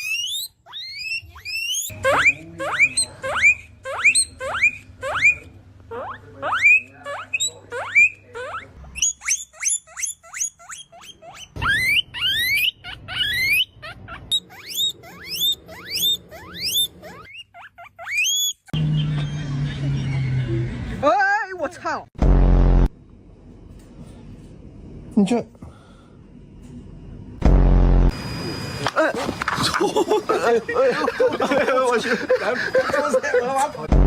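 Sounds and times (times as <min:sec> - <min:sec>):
guinea pig wheeking: 0:00.0 - 0:19.5.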